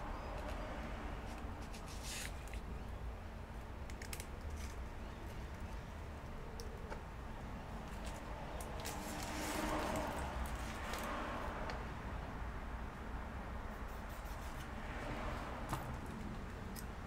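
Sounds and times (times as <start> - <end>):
adhesive tape rustling and clicking: 1.2 - 2.8, 3.8 - 7.0, 7.8 - 11.8.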